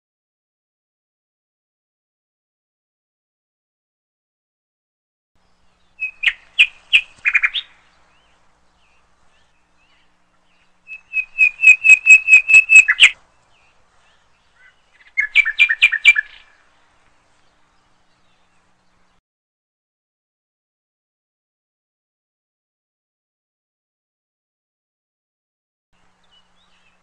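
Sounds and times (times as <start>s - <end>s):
bird chirping: 5.4s - 19.2s, 26.0s - 27.0s.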